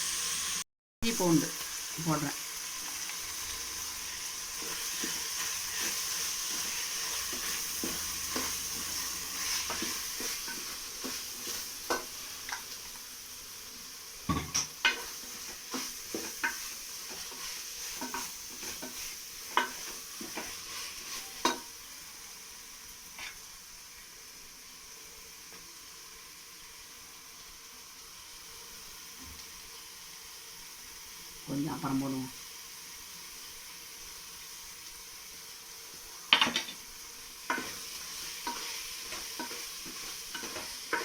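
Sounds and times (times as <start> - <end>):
paste sizzling in a pan: 0.0 - 41.0
spoon knocking against pan: 14.3 - 15.1, 21.4 - 21.7.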